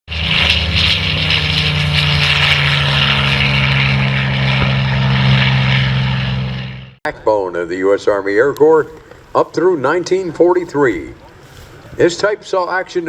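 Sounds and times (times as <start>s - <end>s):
aircraft engine in flight: 0.1s - 7.0s.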